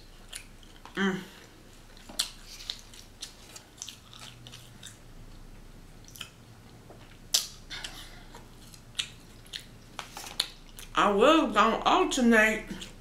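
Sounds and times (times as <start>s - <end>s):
person chewing: 0.0s - 11.0s
wet mouth smacks: 7.3s - 8.0s.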